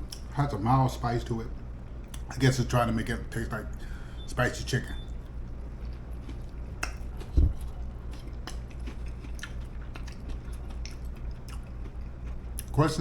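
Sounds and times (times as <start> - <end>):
steady low hum: 0.0 - 13.0
mouth chewing crunchy food: 5.0 - 12.9
dull low thump: 7.3 - 7.6.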